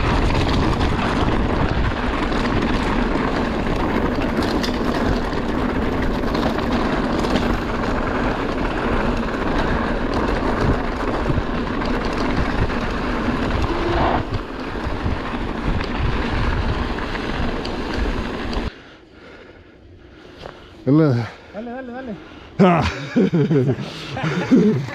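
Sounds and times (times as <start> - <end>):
wind rushing over microphone: 0.0 - 18.7
bike rattling over rough trail: 0.0 - 24.9.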